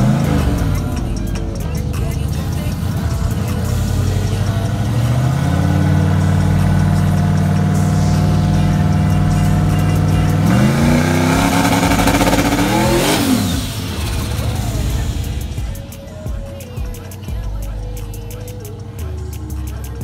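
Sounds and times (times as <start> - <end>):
engine revving at high revs: 0.0 - 15.9.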